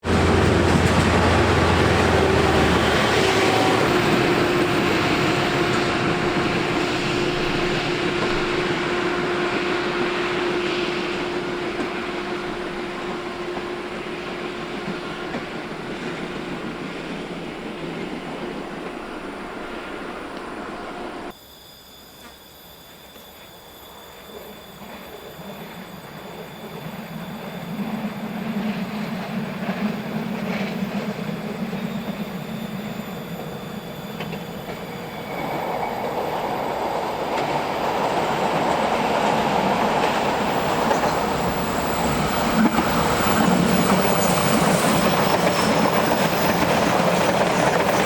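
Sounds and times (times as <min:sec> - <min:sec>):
train running: 0:00.0 - 0:21.4, 0:22.2 - 0:48.0.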